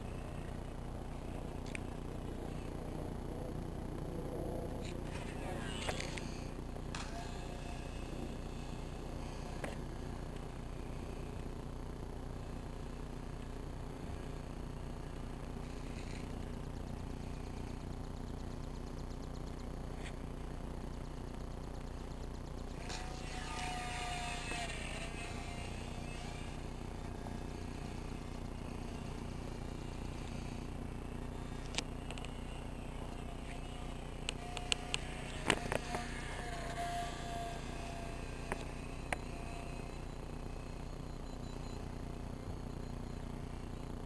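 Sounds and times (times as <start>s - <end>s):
toy airplane motors whining: 0.0s - 11.6s, 12.4s - 41.2s
steady low hum: 0.0s - 44.0s
sharp clicks: 31.6s - 32.4s, 34.2s - 36.8s.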